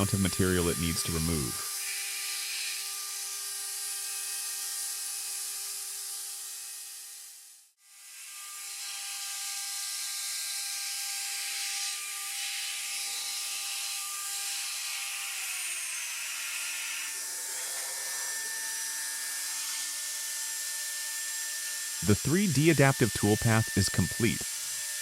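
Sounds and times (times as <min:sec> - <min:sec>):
cnc router spindle whining: 0:16.2 - 0:22.2.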